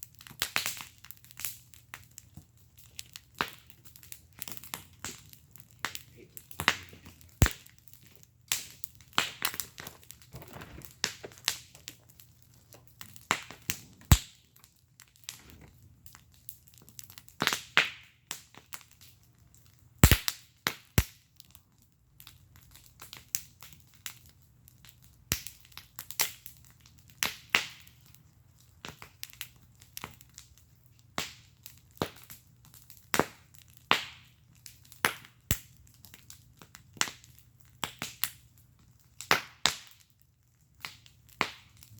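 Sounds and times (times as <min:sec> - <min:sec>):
fire popping: 0:00.0 - 0:41.9
wood fire crackling: 0:00.0 - 0:41.9
fire hissing: 0:20.0 - 0:20.2.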